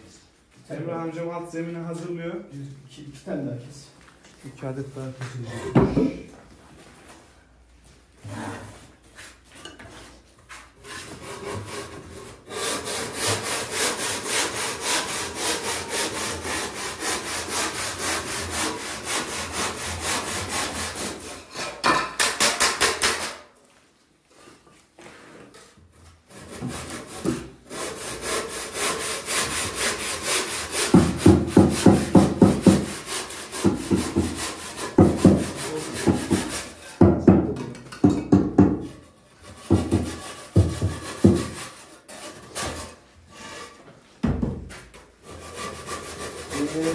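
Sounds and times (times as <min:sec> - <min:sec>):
hand saw cutting: 0:10.7 - 0:23.4, 0:26.3 - 0:37.0, 0:38.8 - 0:43.8, 0:45.2 - 0:46.9.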